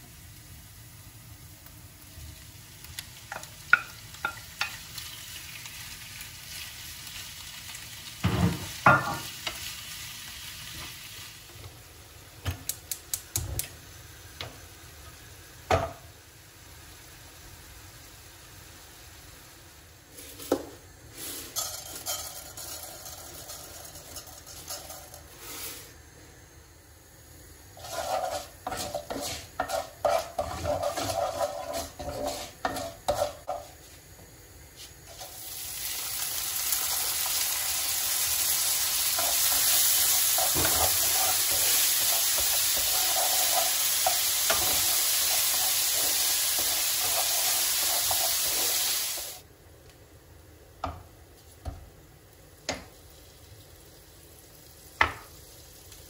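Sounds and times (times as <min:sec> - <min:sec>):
food sizzling in hot pan: 0:00.0 - 0:49.5, 0:51.0 - 0:56.0
knocks on pan: 0:55.0 - 0:55.3.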